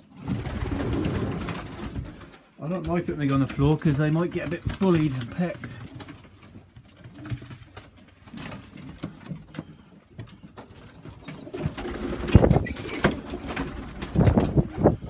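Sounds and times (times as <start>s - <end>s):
pigeons cooing: 9.7s - 15.0s.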